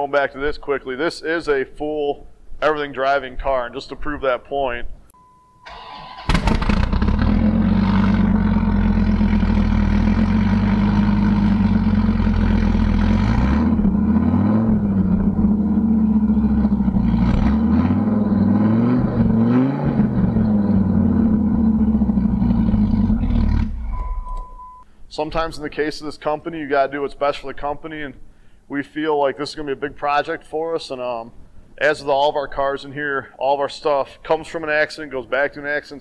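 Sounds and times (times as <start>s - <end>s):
car engine idling and revving: 6.3s - 24.8s.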